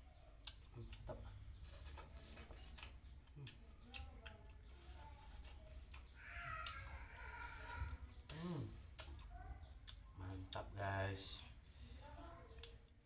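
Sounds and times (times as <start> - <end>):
faint bird calls: 4.7 - 9.8.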